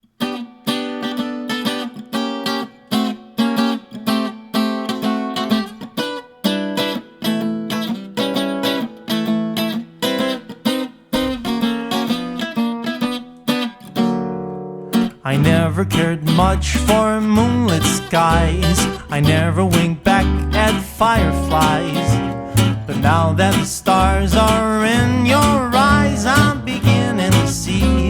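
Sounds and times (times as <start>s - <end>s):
acoustic guitar strumming chords: 0.2s - 28.0s.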